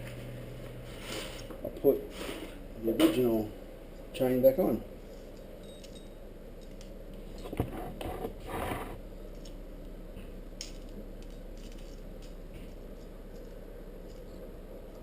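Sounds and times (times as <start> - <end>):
low background hum: 0.0 - 15.0
saw chain clicking and scraping: 10.6 - 14.4.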